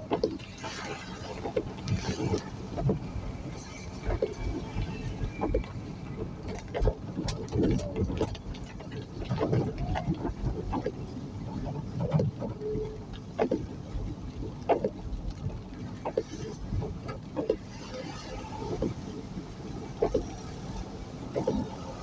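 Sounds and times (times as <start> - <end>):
vehicle road noise: 0.0 - 22.0
wind rumble on microphone: 0.0 - 22.0.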